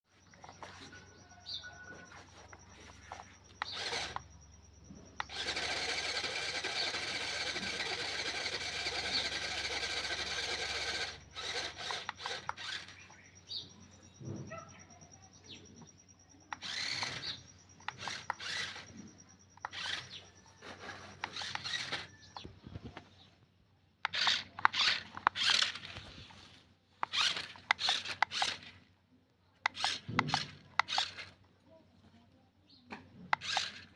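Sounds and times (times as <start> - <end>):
toy car electric motor running: 0.3 - 13.6, 16.4 - 22.5, 24.0 - 26.4, 27.0 - 28.9, 29.6 - 31.5, 33.2 - 33.9.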